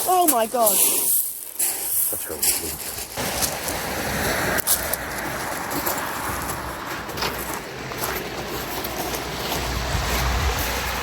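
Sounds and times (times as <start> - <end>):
outdoor rushing noise: 2.5 - 11.0
wind buffeting microphone: 9.2 - 11.0.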